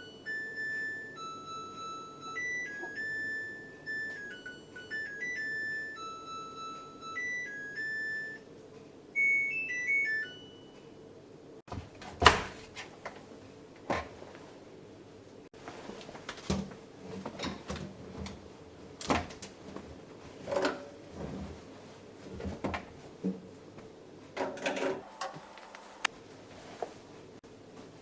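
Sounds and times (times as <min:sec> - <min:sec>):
washing machine beeping melody: 0:00.0 - 0:08.4, 0:09.2 - 0:10.8, 0:25.0 - 0:26.1
sharp clicks and knocks: 0:25.0 - 0:26.1.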